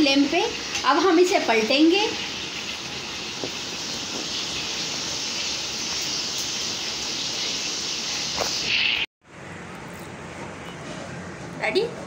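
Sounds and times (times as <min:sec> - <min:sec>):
kebabs sizzling in hot oil: 0:00.0 - 0:09.1.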